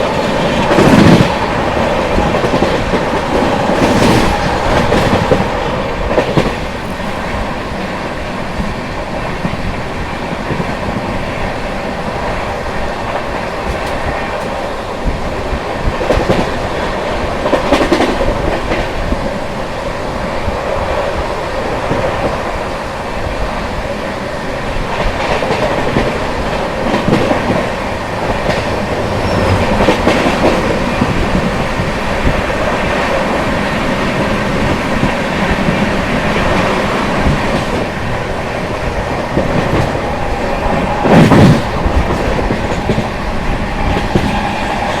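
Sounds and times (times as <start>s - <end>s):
train wheels rumbling on track: 0.0s - 45.0s
wheels clacking over rail joints: 24.9s - 45.0s.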